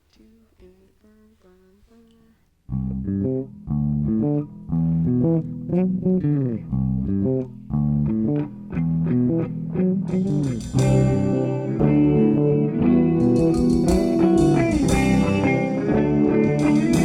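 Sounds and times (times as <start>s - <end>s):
electric guitar plucked notes: 2.7s - 17.0s
live band playing: 10.1s - 17.0s.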